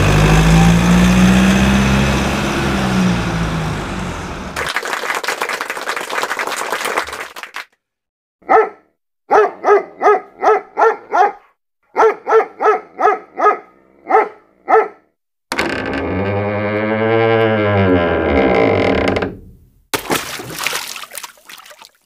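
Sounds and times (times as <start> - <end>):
dog barking: 8.4 - 15.1.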